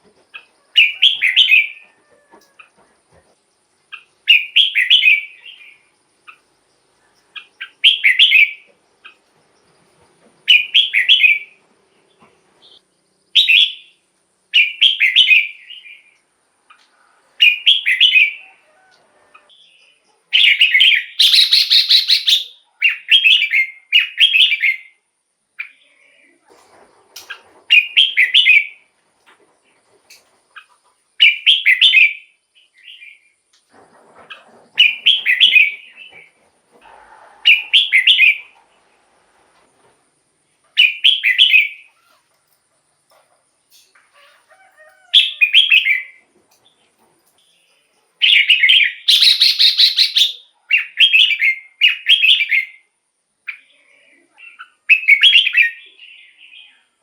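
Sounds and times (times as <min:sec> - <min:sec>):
bulbul singing whistled phrases: 0:20.4 - 0:25.0, 0:48.2 - 0:52.8, 0:53.5 - 0:56.9.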